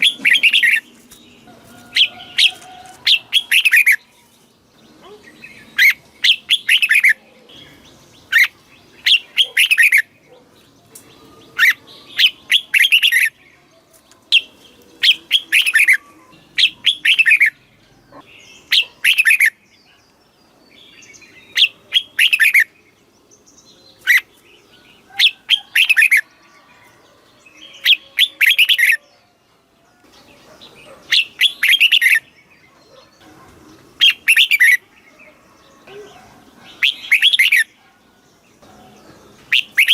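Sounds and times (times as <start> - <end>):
bird singing whistled phrases: 36.8 - 37.7, 39.5 - 39.9.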